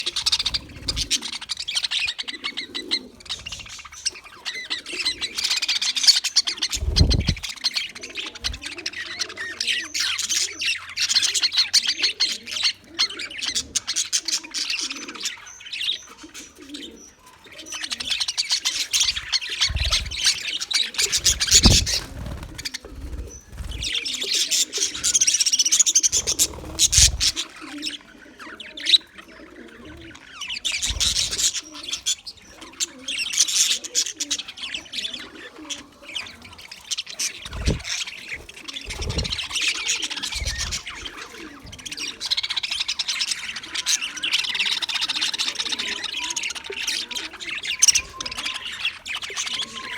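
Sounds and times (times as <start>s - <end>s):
budgerigars chattering: 0.0s - 49.9s
low thumps: 6.8s - 7.5s, 21.2s - 22.1s.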